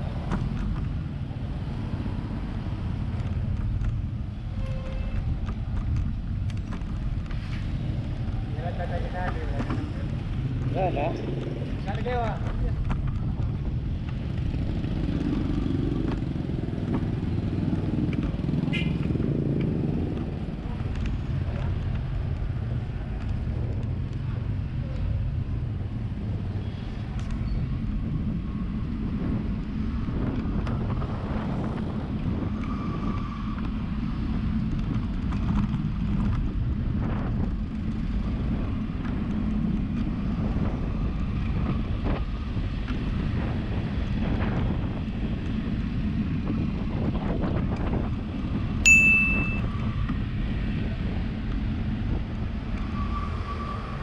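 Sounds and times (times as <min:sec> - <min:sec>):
wind and road noise: 0:00.0 - 0:54.0
bicycle bell ding: 0:48.8 - 0:49.7.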